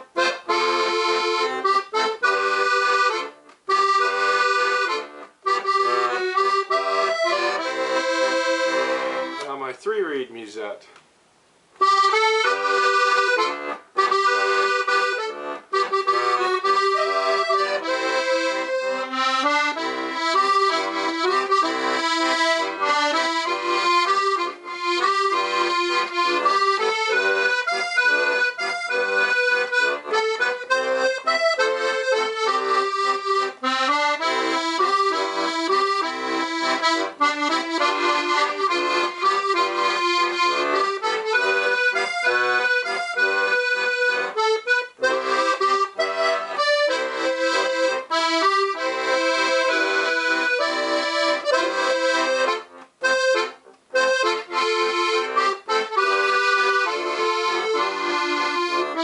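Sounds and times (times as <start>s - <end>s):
accordion playing a tune: 0.0s - 10.7s, 11.8s - 59.0s.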